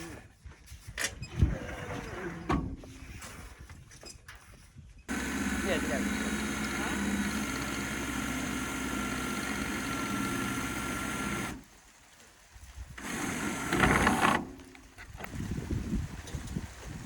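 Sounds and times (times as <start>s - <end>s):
wind buffeting microphone: 0.3s - 4.0s, 15.0s - 17.0s
motor humming: 5.1s - 11.7s, 13.0s - 17.0s.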